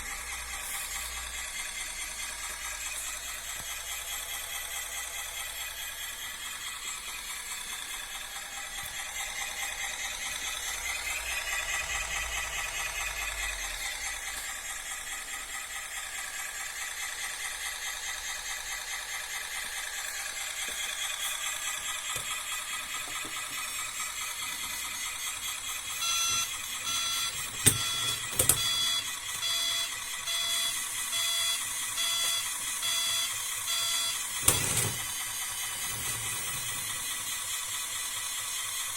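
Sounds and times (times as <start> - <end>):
toy bulldozer motor whining: 0.0 - 38.9
repeating beep: 26.0 - 34.2.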